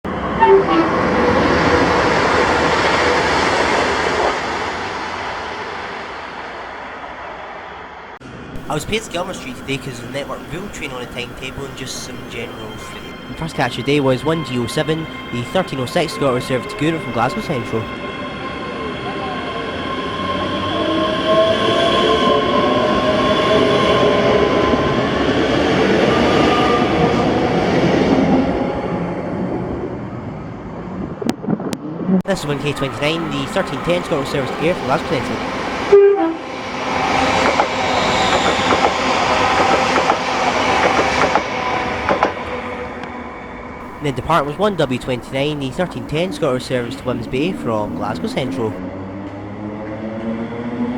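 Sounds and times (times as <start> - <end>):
electric train whine: 8.6 - 26.9, 32.3 - 48.8.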